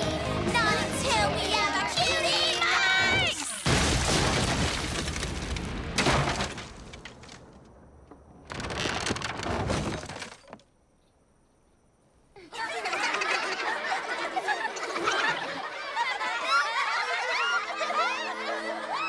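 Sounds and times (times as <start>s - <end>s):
music: 0.0s - 3.3s, 17.4s - 19.0s.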